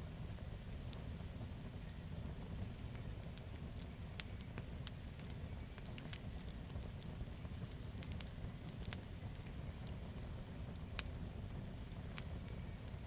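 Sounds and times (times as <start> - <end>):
campfire wood crackling and popping: 0.0 - 13.0
low steady fire rumble: 0.0 - 13.0.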